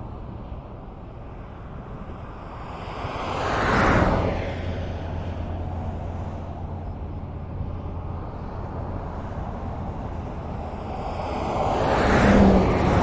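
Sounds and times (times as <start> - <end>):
road noise rumble: 0.0 - 13.0
car passing: 2.6 - 13.0.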